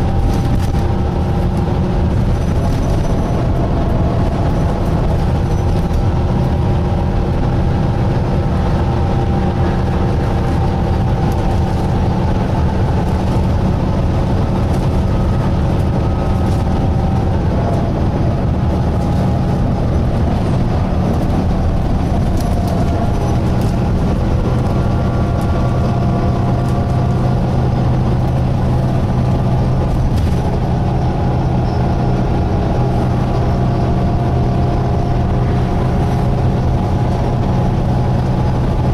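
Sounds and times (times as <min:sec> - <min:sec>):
bus diesel engine humming: 0:00.0 - 0:38.9
drivetrain whining: 0:00.0 - 0:38.9.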